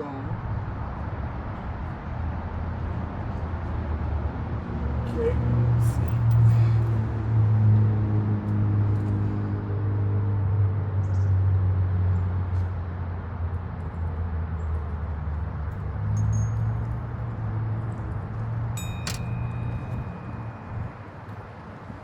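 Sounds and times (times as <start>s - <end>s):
sharp metallic clink: 16.2s - 16.9s, 18.8s - 21.0s.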